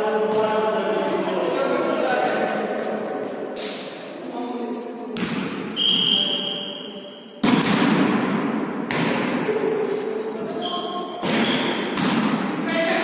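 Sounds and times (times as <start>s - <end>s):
ball bouncing on indoor court: 0.1s - 4.0s, 5.1s - 6.7s, 7.3s - 13.0s.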